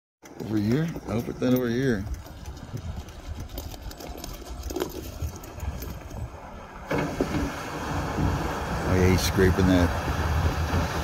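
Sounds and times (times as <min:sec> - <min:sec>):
loader scraping road: 0:00.3 - 0:11.0
loader engine running: 0:05.1 - 0:11.0.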